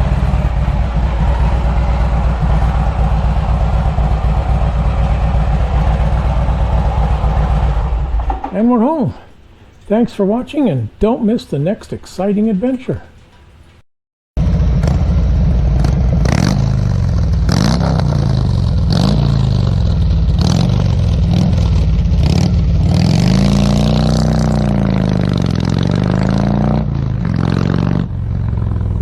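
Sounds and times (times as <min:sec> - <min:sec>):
motorcycle engine accelerating: 0:00.0 - 0:08.6, 0:14.4 - 0:29.0.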